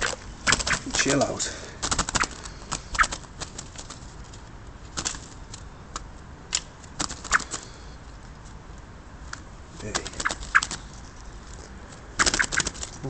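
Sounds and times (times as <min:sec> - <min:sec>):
bird wings fluttering: 0:00.0 - 0:01.2, 0:01.8 - 0:04.3, 0:07.0 - 0:07.7, 0:09.9 - 0:10.9, 0:12.2 - 0:13.0.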